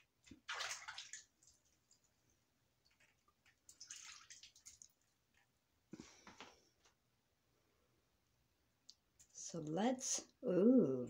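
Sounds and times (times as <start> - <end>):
hand swishing through bathwater: 0.2 - 1.7, 3.7 - 5.0.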